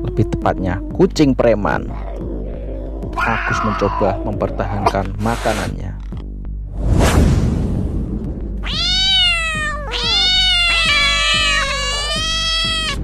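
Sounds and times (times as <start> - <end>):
cats yowling aggressively: 1.7 - 4.9, 8.6 - 13.0
quick whoosh: 6.7 - 8.3.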